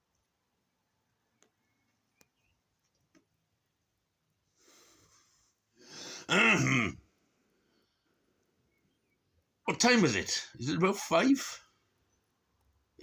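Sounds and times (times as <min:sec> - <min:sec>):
faint clicks: 0:01.3 - 0:03.4
man breathing: 0:04.6 - 0:06.3.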